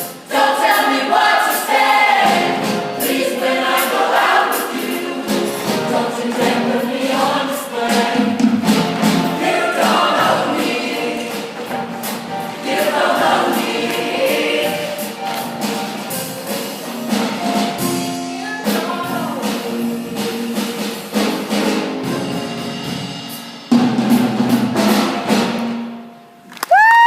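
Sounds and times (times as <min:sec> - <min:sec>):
choir singing in harmony: 0:00.0 - 0:17.8
backing band with drums: 0:00.0 - 0:26.1.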